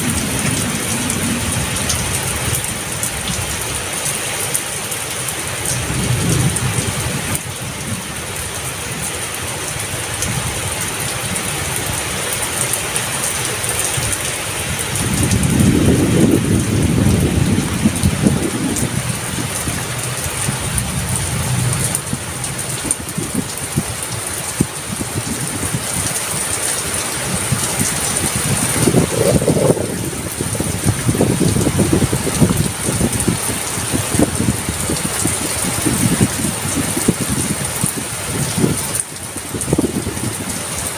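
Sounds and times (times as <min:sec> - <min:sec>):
heavy rain falling: 0:00.0 - 0:40.9
low rumble: 0:14.8 - 0:24.5.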